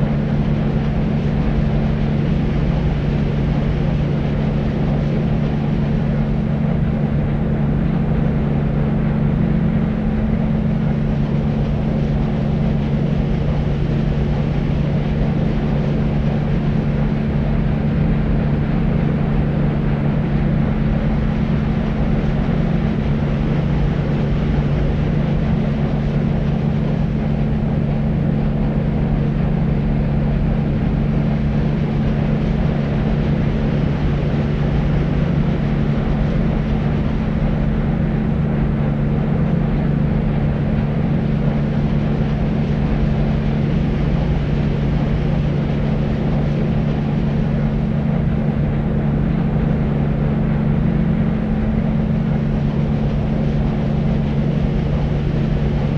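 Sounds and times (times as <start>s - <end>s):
deep white noise: 0.0s - 55.9s.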